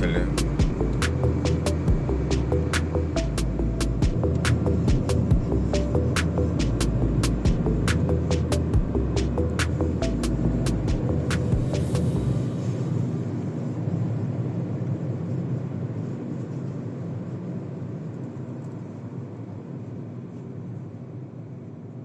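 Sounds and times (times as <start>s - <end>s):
car engine: 0.0s - 13.4s
road rumble: 0.0s - 14.4s.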